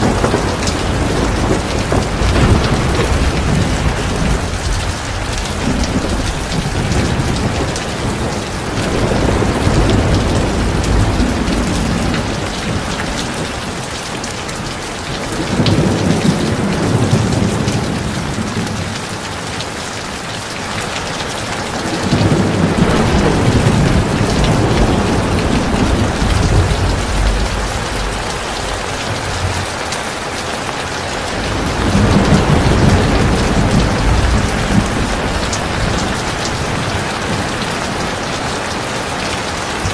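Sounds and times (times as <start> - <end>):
low rolling rumble: 0.0 - 14.0, 21.8 - 38.7
heavy rain: 0.0 - 39.9.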